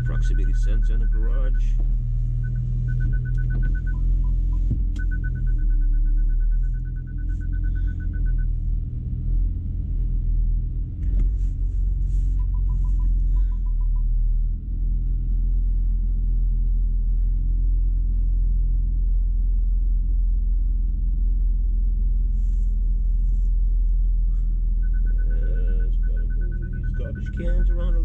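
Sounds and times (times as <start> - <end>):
parking sensor beeping: 0.0 - 8.6, 12.4 - 14.1, 24.4 - 28.0
car engine idling: 0.0 - 28.0.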